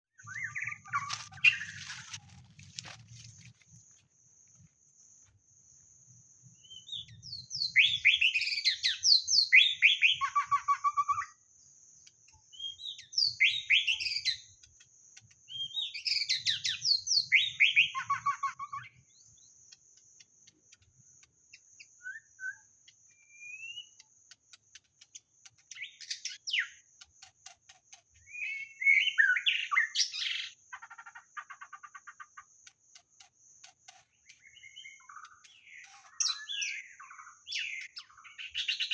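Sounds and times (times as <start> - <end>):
bird singing whistled notes: 0.2 - 1.8, 6.5 - 11.5, 12.3 - 14.7, 15.4 - 19.8, 21.5 - 24.1, 25.1 - 26.9, 28.2 - 30.6, 34.2 - 38.9.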